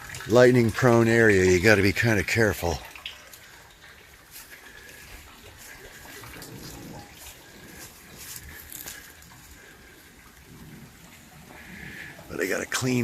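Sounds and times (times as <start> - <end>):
light rain falling: 0.0 - 13.0
water running and dripping: 0.0 - 13.0.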